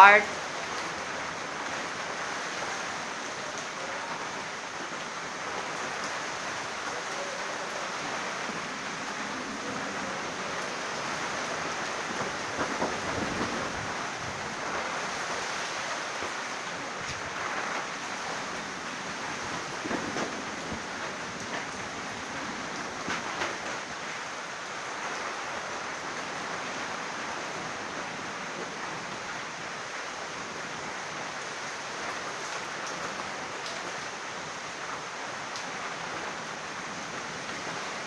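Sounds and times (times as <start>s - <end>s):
heavy rain falling: 0.0s - 38.0s.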